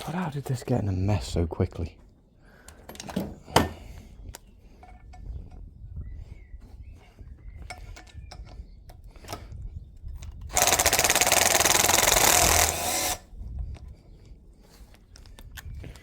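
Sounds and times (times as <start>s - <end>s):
tools and metal knocking: 2.9s - 3.8s
power tool rattling: 10.3s - 13.2s.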